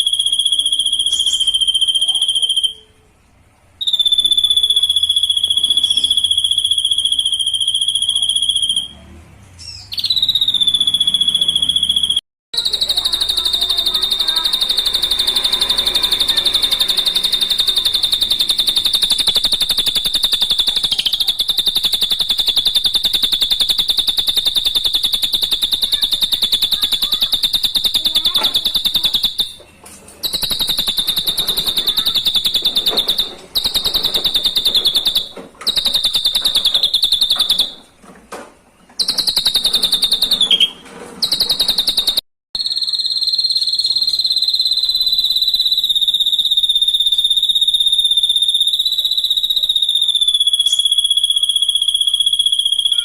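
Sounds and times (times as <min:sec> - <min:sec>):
bird trilling: 0:00.0 - 0:03.0, 0:03.8 - 0:09.0, 0:09.6 - 0:37.9, 0:39.0 - 0:53.0.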